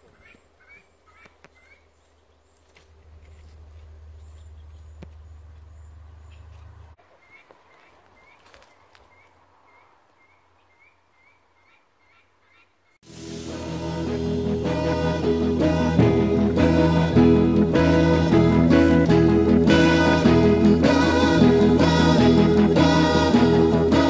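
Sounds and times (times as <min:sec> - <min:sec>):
bird chirping: 0:00.0 - 0:13.0
loud music: 0:13.0 - 0:24.0.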